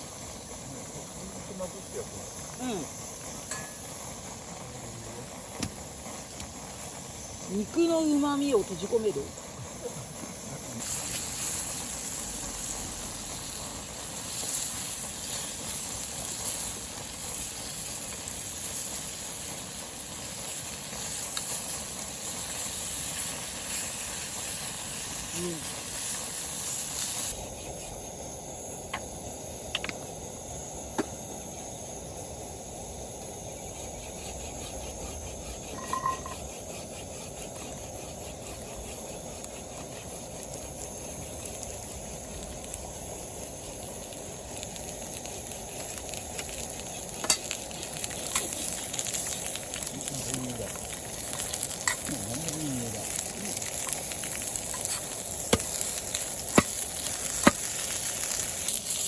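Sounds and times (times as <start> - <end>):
meat sizzling in a hot pan: 0.0 - 59.0
small pops and ticks: 5.5 - 6.6, 20.8 - 22.1, 28.9 - 30.1, 30.9 - 31.3, 37.5 - 59.0.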